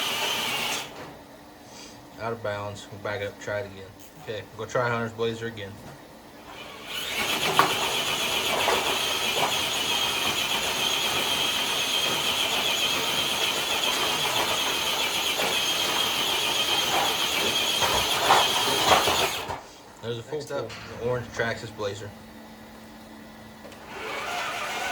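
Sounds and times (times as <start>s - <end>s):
electric motor and drivetrain whining: 0.0s - 1.1s, 6.4s - 19.6s, 21.1s - 24.9s.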